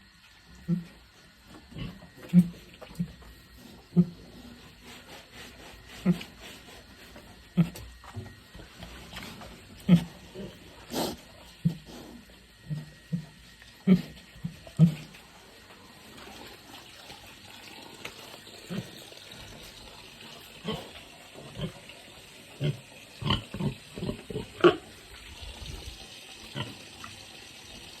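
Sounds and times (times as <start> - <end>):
pig grunting: 0.6 - 1.0, 1.6 - 8.0, 9.1 - 15.3, 17.6 - 27.2.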